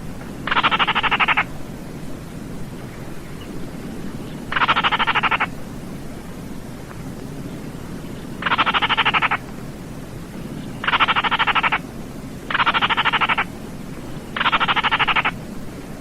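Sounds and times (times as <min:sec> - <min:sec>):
bird calling with dry rattles: 0:00.4 - 0:01.5, 0:04.2 - 0:05.6, 0:08.0 - 0:09.5, 0:10.5 - 0:11.8, 0:12.5 - 0:15.4.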